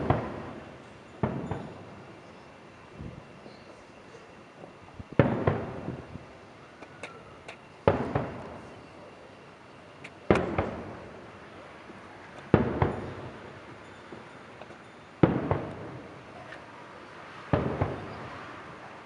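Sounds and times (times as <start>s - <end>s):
sharp firework cracks: 0.0s - 1.8s, 5.2s - 6.1s, 7.0s - 8.8s, 10.0s - 13.6s, 14.2s - 16.7s, 17.4s - 18.6s
firework booms with echoes: 0.0s - 1.9s, 5.1s - 6.2s, 7.8s - 8.8s, 10.3s - 11.2s, 11.9s - 13.5s, 15.2s - 16.3s, 17.5s - 18.4s.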